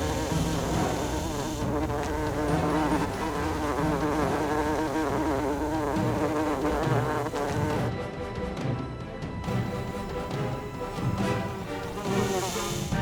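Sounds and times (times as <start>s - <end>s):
cartoon insect buzzing: 0.0s - 7.9s, 10.9s - 13.0s
low pulses: 0.0s - 7.9s.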